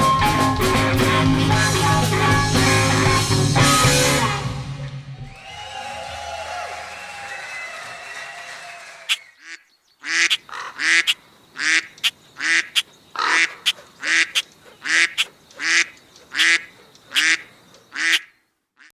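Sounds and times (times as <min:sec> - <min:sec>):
loud honking: 0:00.0 - 0:04.9, 0:09.1 - 0:18.9
music: 0:00.0 - 0:06.1.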